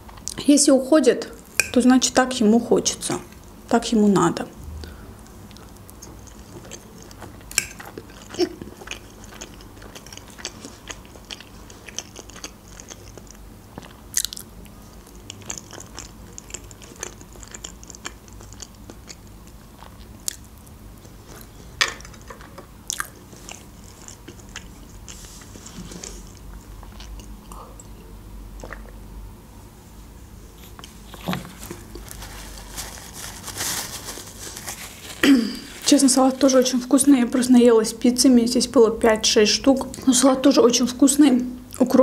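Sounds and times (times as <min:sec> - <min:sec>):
chewing and wet mouth sounds: 0:05.3 - 0:22.2, 0:22.8 - 0:29.0.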